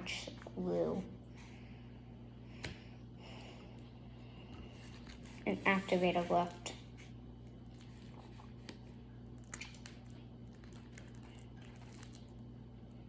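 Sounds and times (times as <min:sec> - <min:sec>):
low steady hum: 0:00.0 - 0:13.0
slime squishing: 0:04.7 - 0:13.0.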